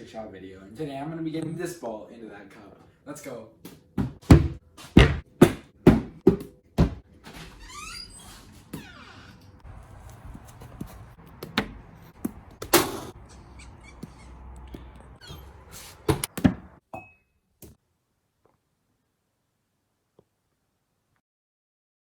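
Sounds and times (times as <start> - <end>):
sharp knocks: 4.0 - 7.0
rising squeak: 7.4 - 9.6, 13.2 - 14.6, 15.2 - 15.7.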